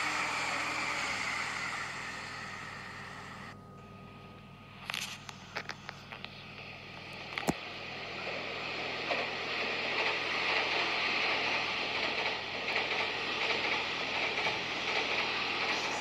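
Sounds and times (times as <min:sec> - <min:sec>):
train passing at speed: 0:00.0 - 0:03.6, 0:06.8 - 0:16.0.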